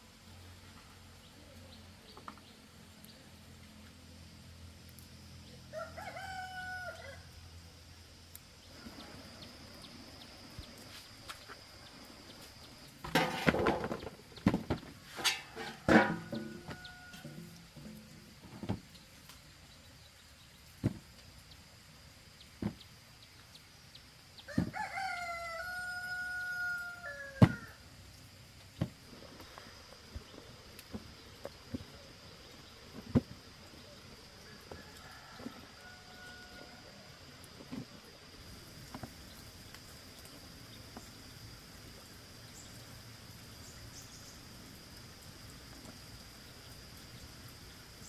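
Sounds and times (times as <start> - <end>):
rooster crowing: 5.7 - 7.3, 15.3 - 17.6, 24.5 - 27.8, 34.4 - 37.1
high-pitched insect tone: 38.0 - 48.0.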